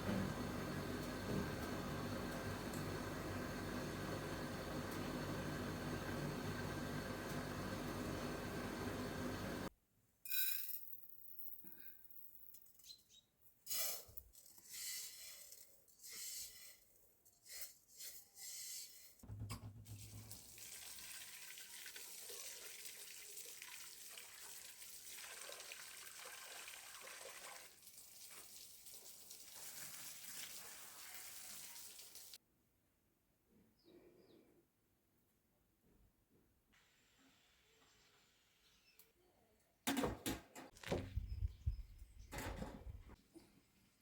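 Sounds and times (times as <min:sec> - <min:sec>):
water running: 0:19.9 - 0:32.4.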